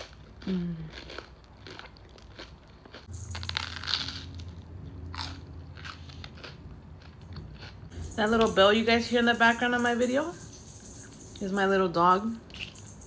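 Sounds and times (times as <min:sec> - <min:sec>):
crunchy toast chewing: 0:00.0 - 0:07.9.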